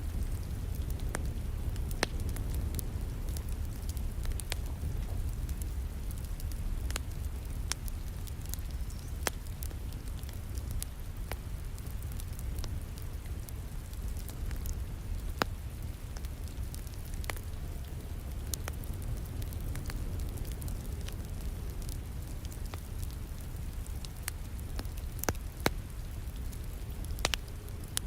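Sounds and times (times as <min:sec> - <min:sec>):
fireplace fire crackling and popping: 0:00.0 - 0:28.0
rain pattering: 0:00.0 - 0:28.0.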